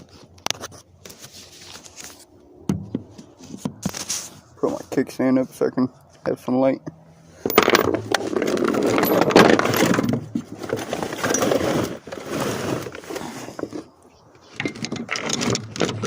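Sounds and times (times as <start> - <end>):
handling rustling and scraping: 0.0 - 6.4, 7.2 - 16.0
light clinks and knocks: 7.4 - 10.4.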